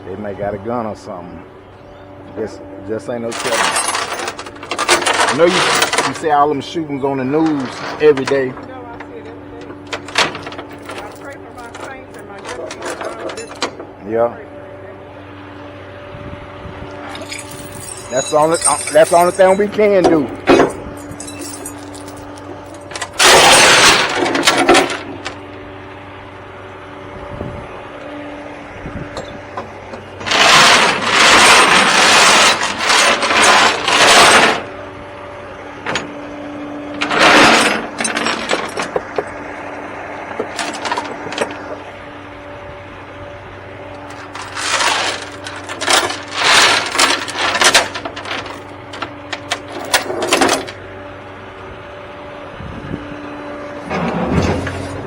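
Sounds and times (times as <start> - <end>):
vehicle engine humming: 0.0 - 55.0
loud clattering bursts: 3.3 - 6.4, 17.1 - 25.4, 30.2 - 34.7, 37.0 - 39.2, 40.4 - 41.6, 44.1 - 50.8.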